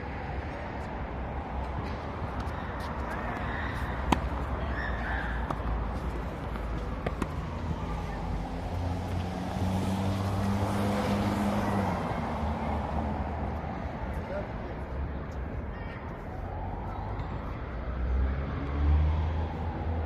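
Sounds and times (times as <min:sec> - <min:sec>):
outdoor background noise: 0:00.0 - 0:20.0
vehicle engine passing by: 0:03.0 - 0:13.7, 0:17.9 - 0:20.0.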